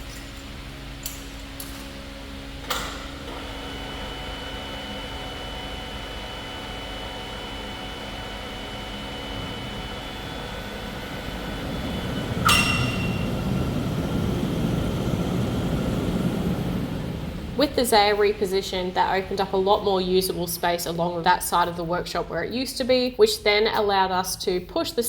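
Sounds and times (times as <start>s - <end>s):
mechanical hum: 0.0s - 25.0s
metal clank ringing: 12.4s - 13.8s.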